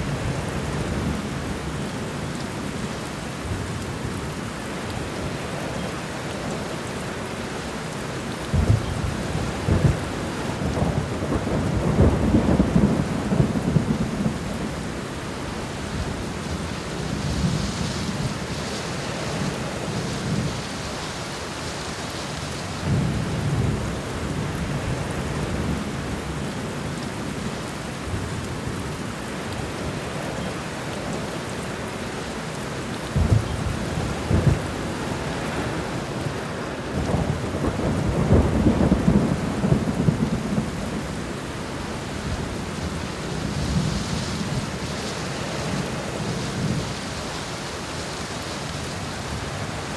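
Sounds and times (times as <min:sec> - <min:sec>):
heavy rain: 0:00.0 - 0:49.9
thunder rolling and crackling: 0:08.5 - 0:15.0, 0:33.1 - 0:36.3, 0:36.9 - 0:47.1.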